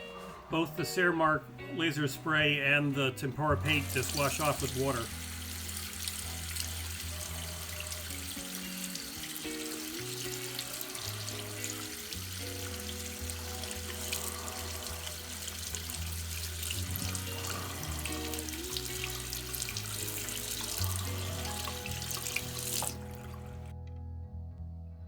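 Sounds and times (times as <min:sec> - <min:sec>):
background music: 0:00.0 - 0:25.0
tap water running into sink: 0:03.6 - 0:23.6.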